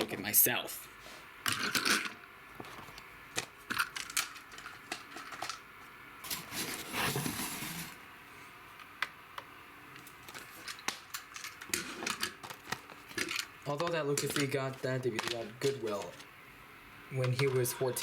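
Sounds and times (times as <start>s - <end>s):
rustling and scraping: 6.2s - 8.0s, 10.0s - 16.3s
small clicks and knocks: 8.8s - 16.3s.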